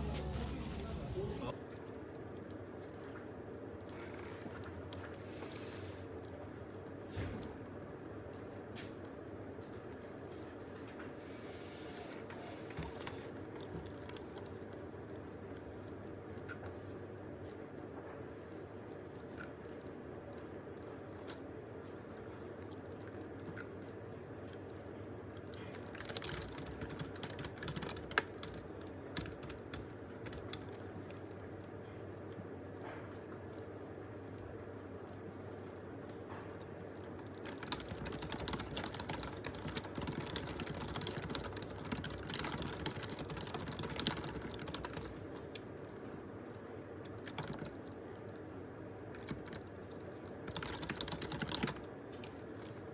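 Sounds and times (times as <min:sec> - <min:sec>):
steady low hum: 0:00.0 - 0:52.9
typing on a computer keyboard: 0:08.3 - 0:16.7, 0:18.5 - 0:48.5, 0:49.1 - 0:52.8.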